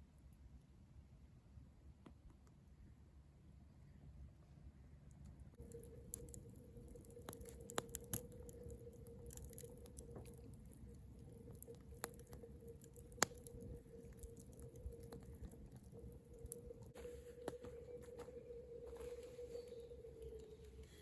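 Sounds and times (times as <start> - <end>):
faint steady hum: 0.0 - 21.0
campfire crackling and popping: 5.6 - 21.0.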